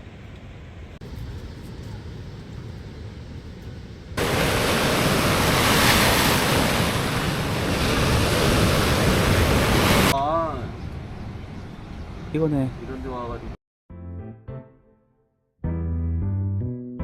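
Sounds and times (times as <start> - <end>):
surf rushing: 4.2 - 10.2.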